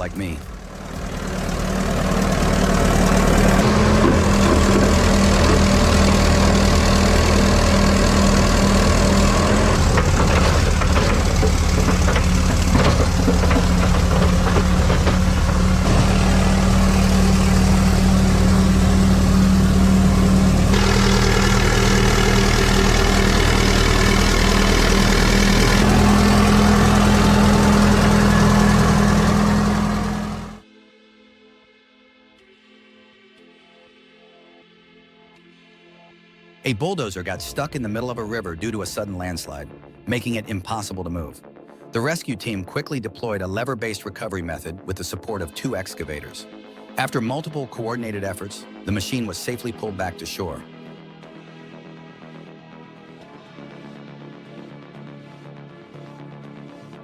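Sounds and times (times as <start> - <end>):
heavy diesel engine running: 0.0 - 30.6.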